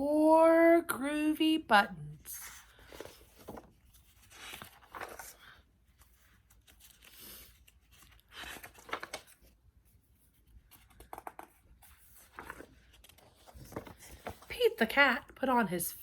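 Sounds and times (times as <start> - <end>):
book pages turning: 2.4 - 14.8.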